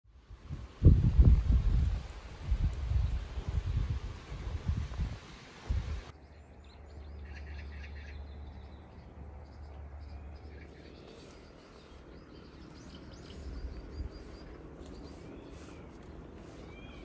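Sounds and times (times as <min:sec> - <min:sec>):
small birds chirping: 0:06.1 - 0:17.0.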